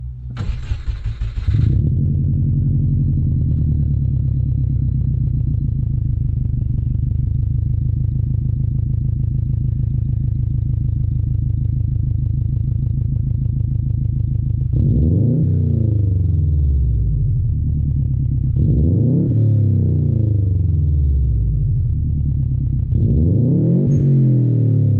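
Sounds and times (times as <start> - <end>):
car engine idling: 0.0 - 18.7, 20.0 - 23.0
engine throttle blip: 0.2 - 1.9.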